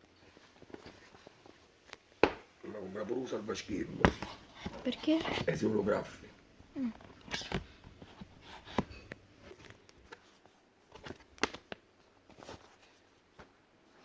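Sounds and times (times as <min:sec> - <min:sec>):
light clicks and knocks handling tablet: 0:04.0 - 0:05.6, 0:06.9 - 0:12.7.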